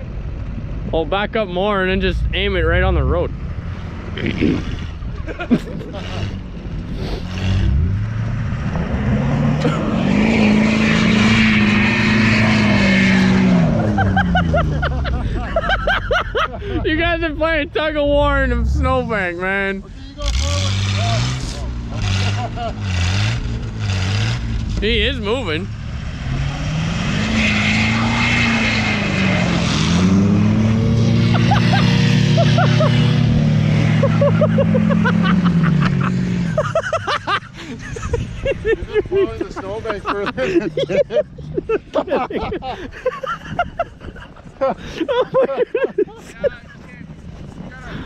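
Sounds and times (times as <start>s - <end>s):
truck engine revving: 0.0s - 42.4s
tyres spinning in snow: 20.2s - 48.0s.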